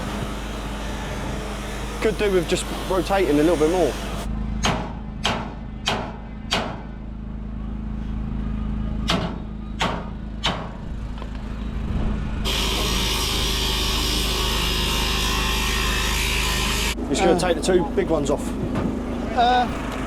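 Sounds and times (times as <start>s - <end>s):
sharp knocks: 4.6s - 6.9s, 9.1s - 10.7s.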